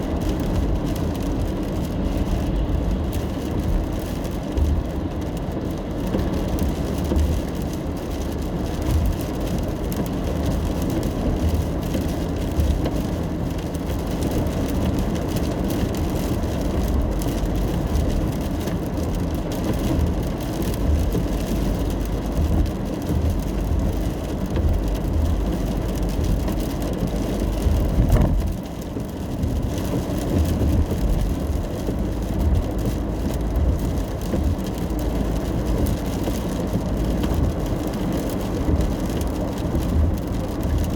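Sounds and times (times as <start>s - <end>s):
rain hissing on car: 0.0s - 40.9s
road and tyre rumble: 0.0s - 40.9s.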